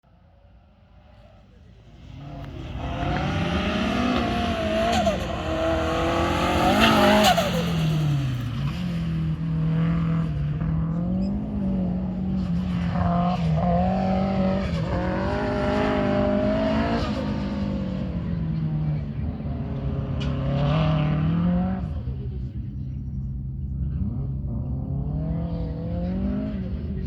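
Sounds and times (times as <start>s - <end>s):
car engine revving hard: 2.0s - 22.1s.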